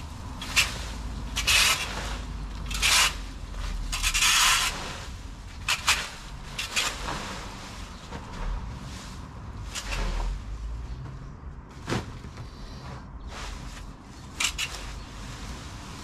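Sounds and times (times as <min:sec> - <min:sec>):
branches rustling and scraping: 0:00.0 - 0:16.0.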